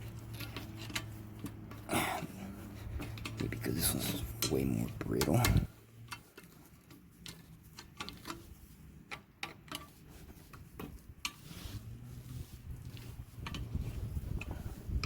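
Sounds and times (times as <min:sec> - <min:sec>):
hand tools clicking and tapping: 0:00.0 - 0:11.4.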